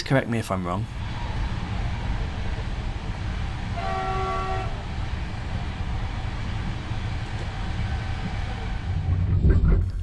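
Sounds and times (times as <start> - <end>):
train running rumble: 0.0 - 10.0
train horn blast: 3.7 - 5.0.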